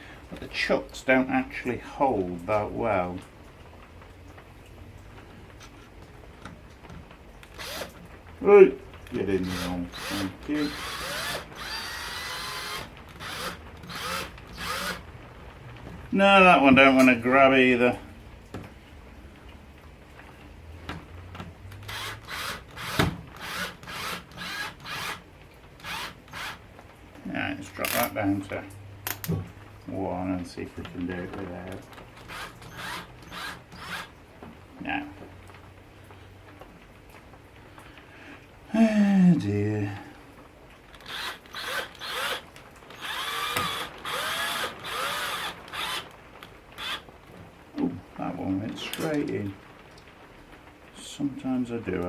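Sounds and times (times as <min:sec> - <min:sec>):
power drill driving screw into wood: 0:07.5 - 0:08.0, 0:09.4 - 0:15.0, 0:21.7 - 0:25.2, 0:25.8 - 0:26.6, 0:32.2 - 0:34.1, 0:40.9 - 0:46.1, 0:46.8 - 0:47.0.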